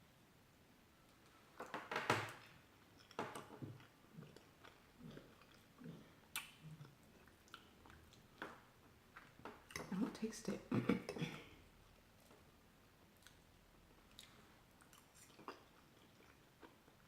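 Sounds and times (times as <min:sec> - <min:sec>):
person chewing: 0:02.4 - 0:08.6, 0:13.0 - 0:17.0.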